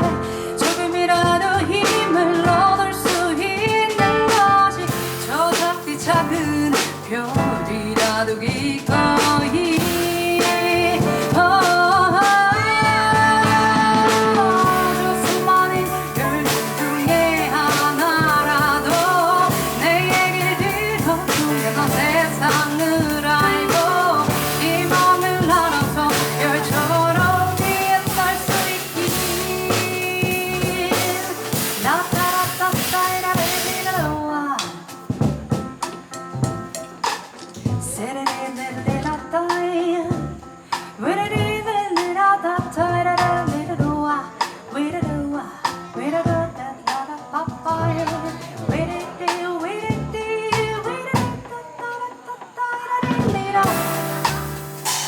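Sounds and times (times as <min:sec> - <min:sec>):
woman singing: 0:00.0 - 0:35.2, 0:37.7 - 0:55.0
drums and cymbals: 0:00.0 - 0:55.0
piano: 0:00.0 - 0:55.0
double bass low notes: 0:06.0 - 0:34.2, 0:53.4 - 0:55.0.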